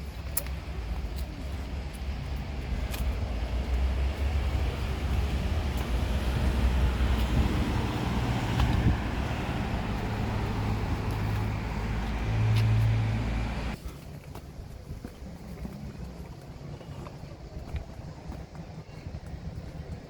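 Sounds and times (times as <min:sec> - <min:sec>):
outdoor background noise: 0:00.0 - 0:20.0
motor engine humming: 0:00.6 - 0:13.8.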